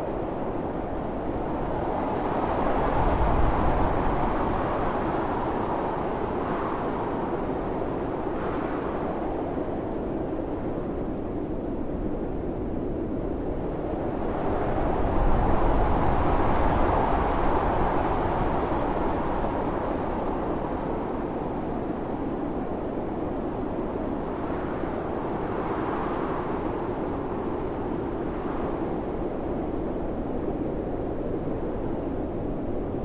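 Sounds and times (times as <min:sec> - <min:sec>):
blizzard wind blowing: 0:00.0 - 0:33.0.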